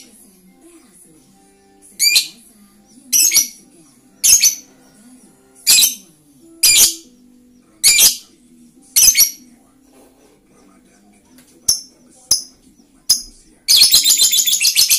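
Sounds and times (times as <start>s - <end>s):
lovebird shrill calls: 13.7s - 14.9s.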